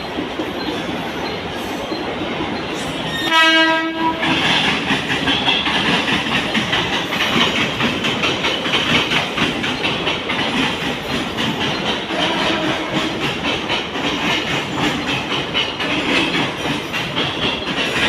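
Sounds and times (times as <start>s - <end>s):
train rumbling past: 0.0s - 18.0s
train horn: 3.1s - 4.4s, 12.1s - 13.2s
wheels clattering over rail joints: 3.9s - 18.0s.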